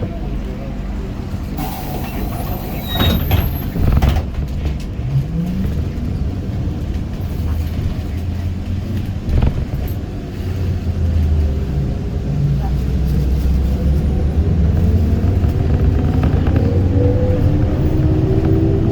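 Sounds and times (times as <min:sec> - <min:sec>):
trolleybus rumbling: 0:00.0 - 0:18.9
sharp knocks and rattles: 0:09.0 - 0:10.0, 0:13.4 - 0:18.9.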